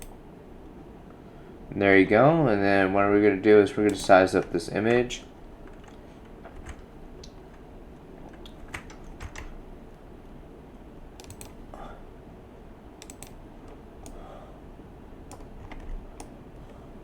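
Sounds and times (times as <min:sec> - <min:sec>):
low background noise: 0:00.0 - 0:17.0
keyboard and mouse clicks: 0:05.6 - 0:07.6, 0:08.2 - 0:09.6, 0:11.2 - 0:11.6, 0:13.0 - 0:14.2, 0:15.3 - 0:16.7.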